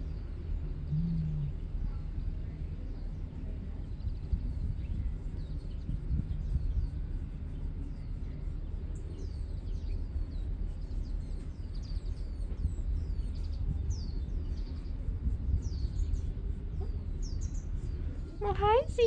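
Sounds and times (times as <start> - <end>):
low background rumble: 0.0 - 19.0
small birds chirping: 0.0 - 19.0.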